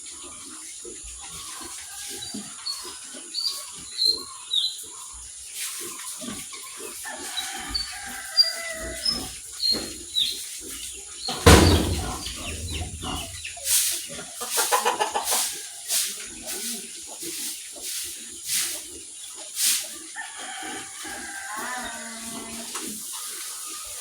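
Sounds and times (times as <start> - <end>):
low animal noises: 0.0 - 15.4, 20.4 - 24.0.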